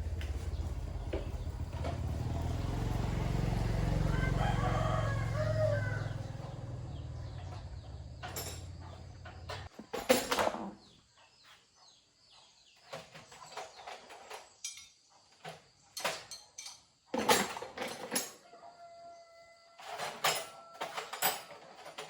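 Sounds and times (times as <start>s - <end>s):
sharp knocks and clatter: 0.0s - 2.8s, 7.2s - 10.8s, 12.8s - 18.4s
rooster crowing: 3.2s - 7.8s, 18.4s - 21.2s.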